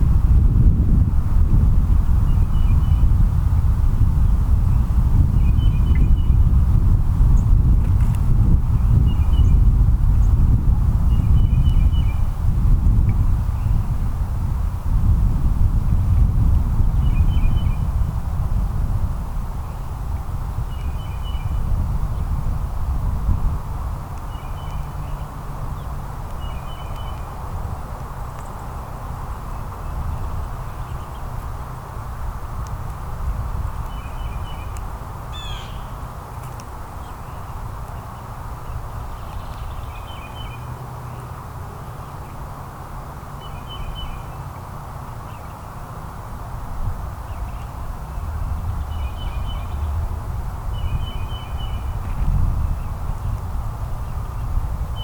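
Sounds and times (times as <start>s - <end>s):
low outdoor rumble: 0.0s - 55.0s
bird sweeping call: 35.3s - 36.0s.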